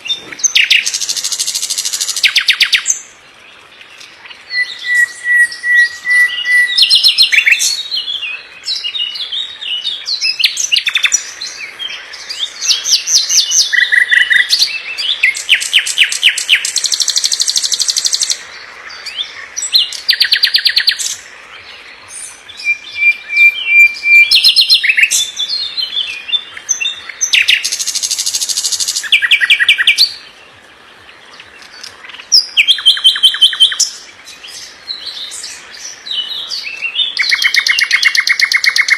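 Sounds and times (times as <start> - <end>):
songbird singing trills: 0.0 - 38.9
held bird whistle: 4.5 - 7.5.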